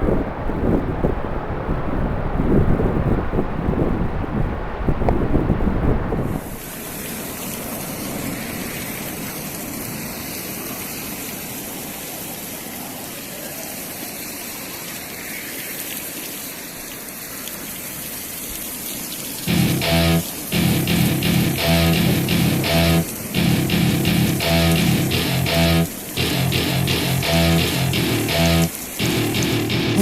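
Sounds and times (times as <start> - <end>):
wind buffeting microphone: 0.0 - 6.6
ocean surf breaking: 0.0 - 13.3, 19.4 - 30.0.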